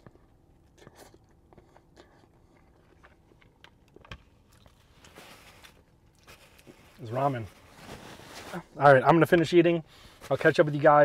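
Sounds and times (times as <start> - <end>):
chewing noodles: 0.0 - 7.0.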